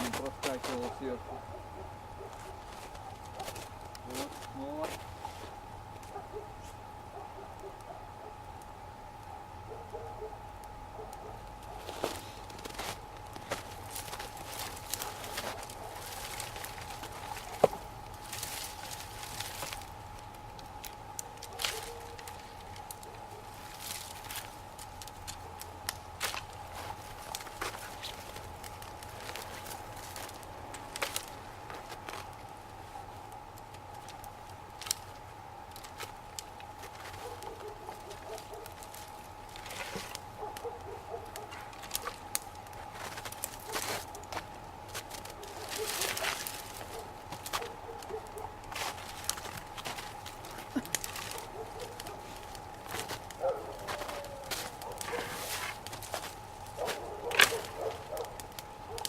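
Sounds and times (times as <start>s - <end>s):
bonfire crackling: 0.0s - 59.0s
fire hissing: 11.5s - 37.2s.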